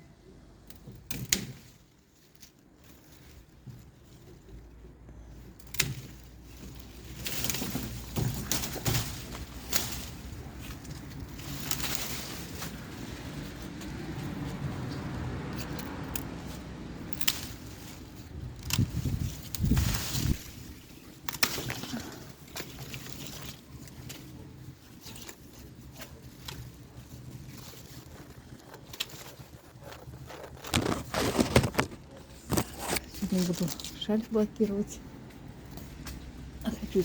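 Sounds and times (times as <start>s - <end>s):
rustling noise: 0.8s - 37.0s
pruning shears snipping: 5.5s - 24.4s.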